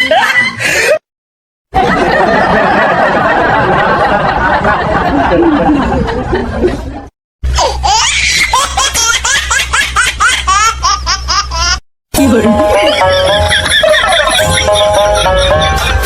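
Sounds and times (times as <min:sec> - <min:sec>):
high-pitched squealing laughter: 0:07.6 - 0:11.8
music: 0:12.1 - 0:16.0.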